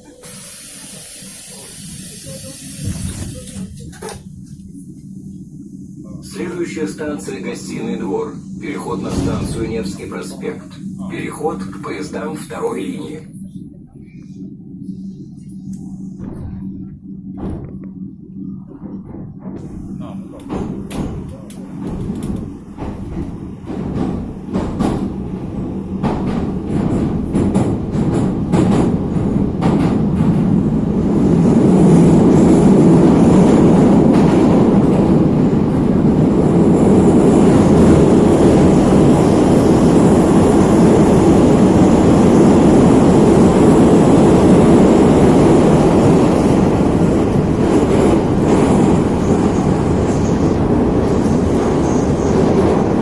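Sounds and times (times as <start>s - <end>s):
train rumbling through tunnel: 0.0s - 53.0s
train wheels clicking over rail joints: 20.3s - 39.3s.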